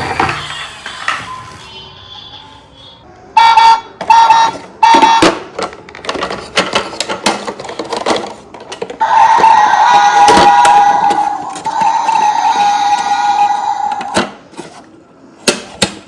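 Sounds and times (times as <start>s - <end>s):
plastic clicking and rattling: 5.5s - 9.0s.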